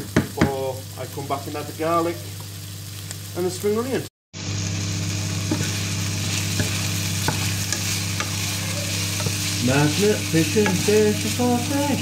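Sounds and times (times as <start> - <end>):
food sizzling in a frying pan: 0.0 - 12.0
spatula tapping pan: 6.5 - 9.5.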